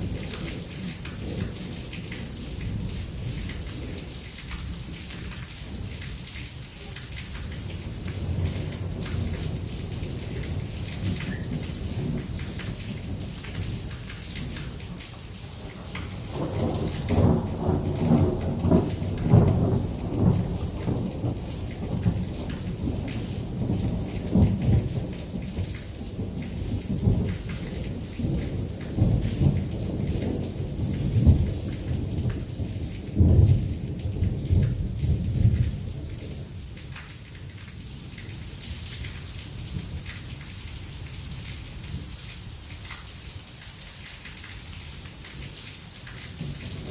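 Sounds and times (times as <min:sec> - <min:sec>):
heavy rain falling: 0:00.0 - 0:46.9
rolling thunder rumble: 0:15.7 - 0:36.4, 0:46.4 - 0:46.9.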